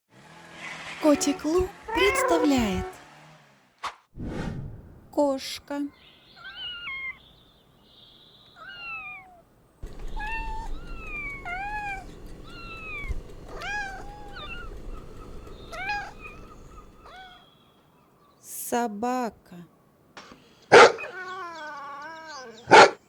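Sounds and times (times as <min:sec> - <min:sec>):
cat meowing: 0:01.0 - 0:03.0, 0:08.6 - 0:09.4, 0:10.2 - 0:14.7, 0:15.7 - 0:17.4, 0:20.8 - 0:22.8.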